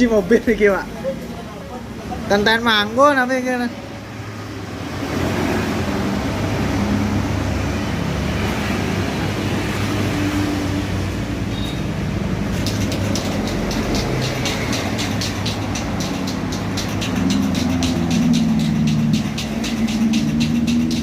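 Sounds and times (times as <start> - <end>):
fast clicks: 12.5 - 21.0.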